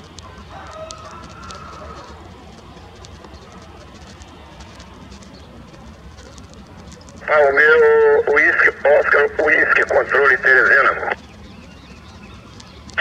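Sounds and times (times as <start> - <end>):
faint high ticks: 0.0 - 7.3, 11.1 - 13.0
steady low rumble: 0.0 - 13.0.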